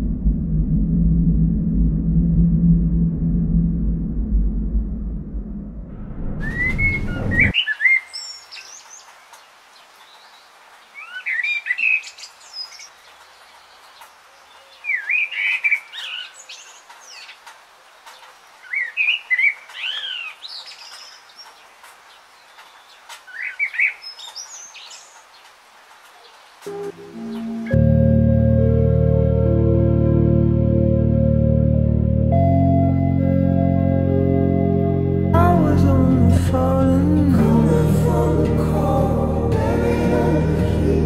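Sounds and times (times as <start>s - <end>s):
low rumble: 0.0s - 7.5s
songbird whistling: 6.4s - 8.4s.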